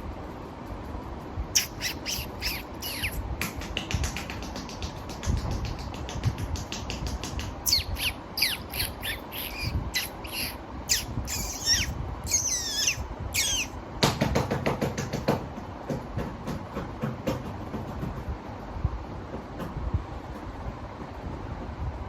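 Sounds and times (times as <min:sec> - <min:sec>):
high squeaky squawks: 0:01.5 - 0:03.2, 0:07.6 - 0:13.8
fast steady clicking: 0:03.4 - 0:07.6.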